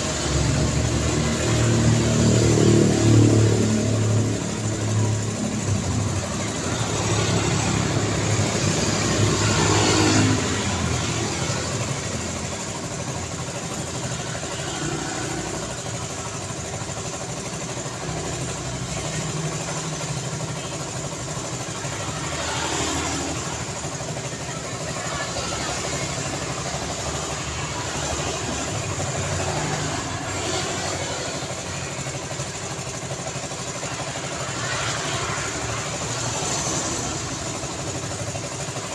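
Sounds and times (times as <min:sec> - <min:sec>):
loud vehicle passing: 0:00.0 - 0:16.1, 0:21.7 - 0:32.1
road traffic noise: 0:00.0 - 0:38.9.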